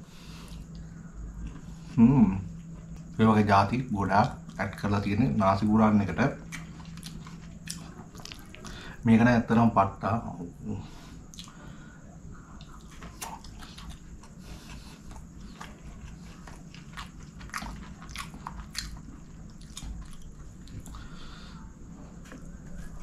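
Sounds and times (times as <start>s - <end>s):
chewing food: 0.4s - 3.2s, 6.2s - 9.0s, 11.2s - 23.0s
wet mouth clicks and crunches: 6.5s - 8.8s, 16.5s - 21.0s.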